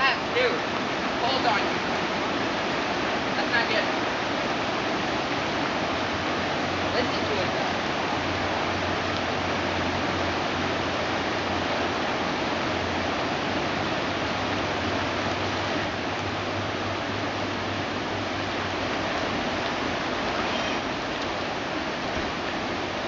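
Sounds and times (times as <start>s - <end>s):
creek water rushing: 0.0s - 23.0s.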